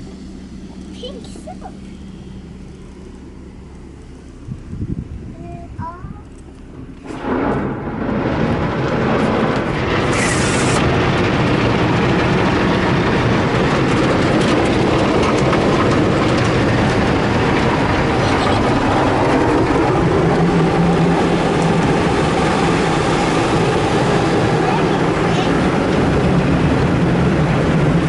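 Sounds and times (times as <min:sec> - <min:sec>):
car wash machinery running: 0:00.0 - 0:28.0
spraying water: 0:09.1 - 0:28.0
brief high hiss: 0:10.1 - 0:10.8.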